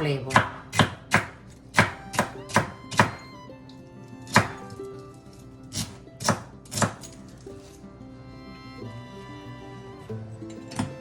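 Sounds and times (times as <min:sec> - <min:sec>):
knife chopping on cutting board: 0:00.0 - 0:03.3, 0:04.3 - 0:04.7, 0:05.7 - 0:07.0, 0:10.7 - 0:11.0.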